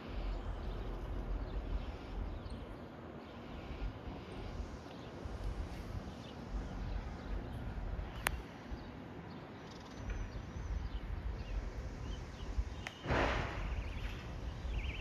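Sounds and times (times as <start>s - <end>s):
low rumble: 0.0s - 2.8s
loud burst of hiss: 11.5s - 15.0s.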